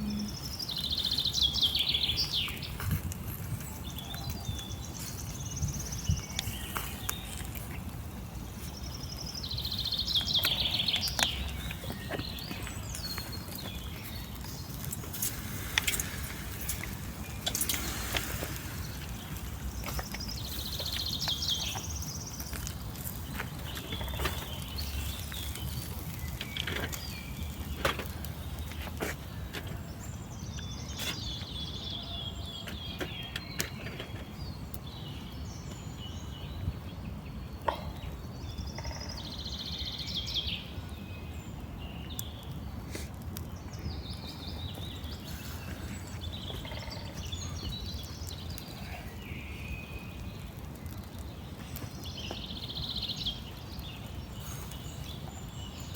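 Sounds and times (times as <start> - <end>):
steady low rumble: 0.0 - 0.9
birds chirping: 0.0 - 55.9.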